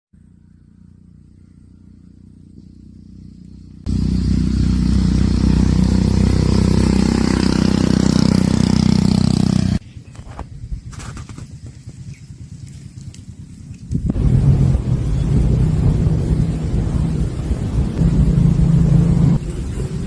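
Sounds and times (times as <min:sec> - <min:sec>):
loud engine-like drone: 0:00.2 - 0:09.8, 0:12.4 - 0:20.0.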